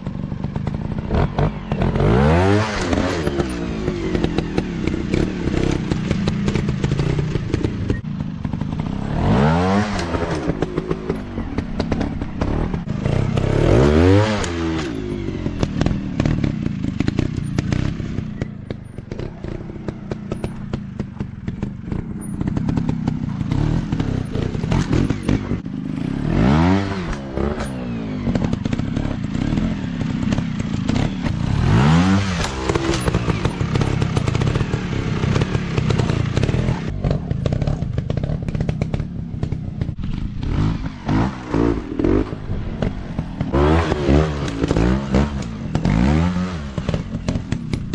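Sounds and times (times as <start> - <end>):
dirt bike engines revving: 0.0 - 47.9
clicks and clatter: 32.3 - 34.7.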